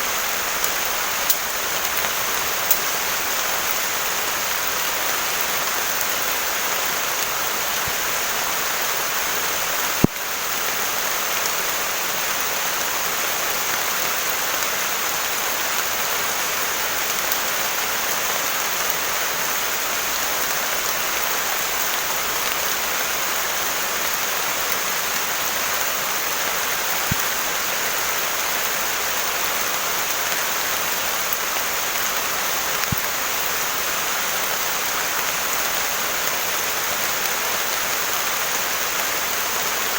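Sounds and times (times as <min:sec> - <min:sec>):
heavy rain: 0:00.0 - 0:39.9
faint ticks: 0:00.6 - 0:03.8.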